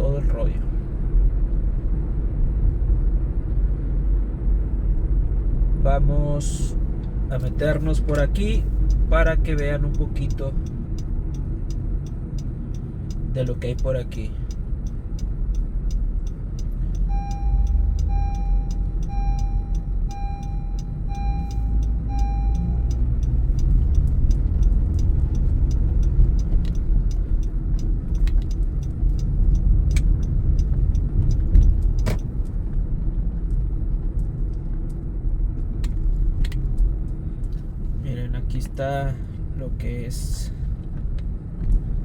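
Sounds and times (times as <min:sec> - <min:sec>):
car cabin engine and road rumble: 0:00.0 - 0:42.0
dashboard chime beeping: 0:16.8 - 0:23.7.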